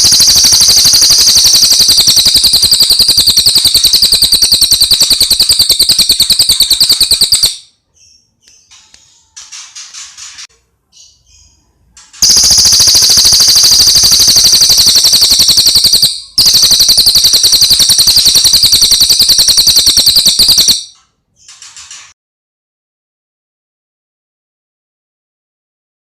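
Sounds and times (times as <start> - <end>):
songbird rapid trill: 0.0 - 7.6, 12.2 - 20.9.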